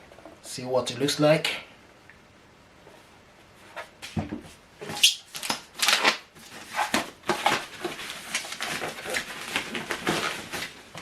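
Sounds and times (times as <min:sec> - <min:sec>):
packaging rustling and knocking: 0:04.2 - 0:11.0.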